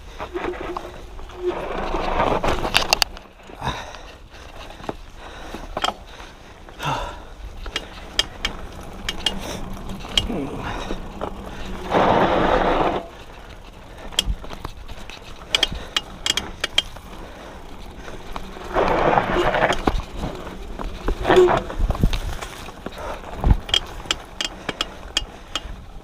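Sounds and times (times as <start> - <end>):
bike hub ratchet clicking: 7.6 - 11.8, 13.1 - 20.3, 23.5 - 25.8.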